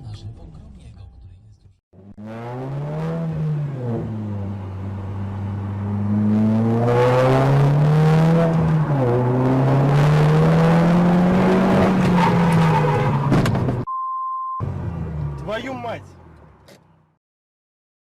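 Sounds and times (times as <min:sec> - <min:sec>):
car engine accelerating: 0:02.0 - 0:13.9, 0:14.6 - 0:17.1.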